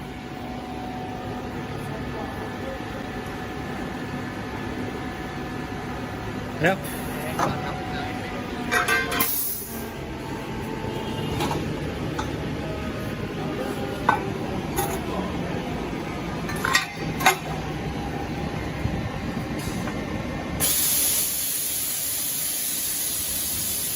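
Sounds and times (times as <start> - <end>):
workshop machinery rumbling: 0.0 - 20.8
loud hiss: 20.6 - 23.9.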